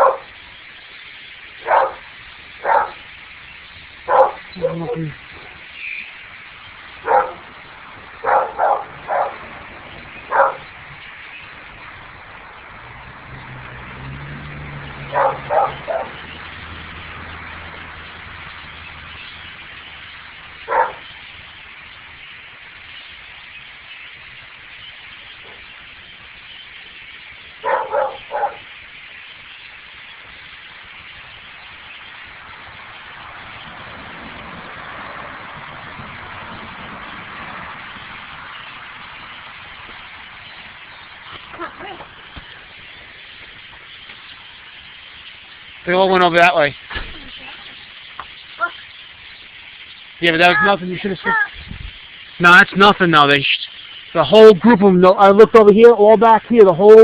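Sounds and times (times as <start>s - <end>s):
dog barking: 0.0s - 0.3s, 1.6s - 2.0s, 2.6s - 3.0s, 4.1s - 5.0s, 7.0s - 7.5s, 8.2s - 9.4s, 10.3s - 10.7s, 15.1s - 16.2s, 20.7s - 21.1s, 27.6s - 28.7s
faint hiss: 0.0s - 57.0s.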